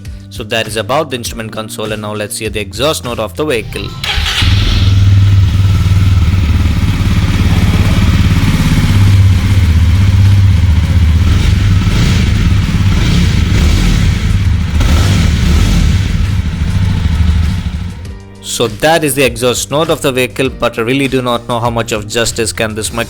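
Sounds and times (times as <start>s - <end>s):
motorcycle engine running: 3.9s - 18.3s.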